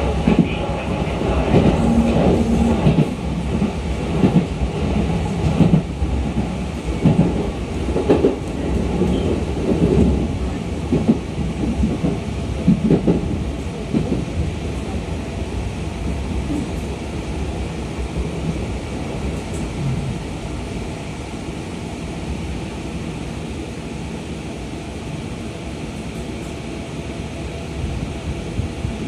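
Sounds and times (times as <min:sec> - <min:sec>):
train wheels rumbling on rail: 0:00.0 - 0:29.0
knocks and clatter from track: 0:01.4 - 0:10.1, 0:10.9 - 0:14.3.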